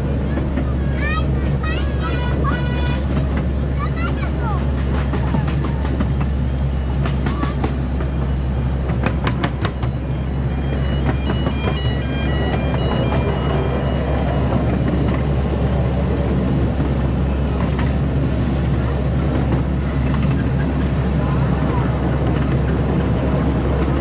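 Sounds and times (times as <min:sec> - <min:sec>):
wheels clicking over rail joints: 0:00.0 - 0:10.1
ride train mechanical hum: 0:00.0 - 0:24.0.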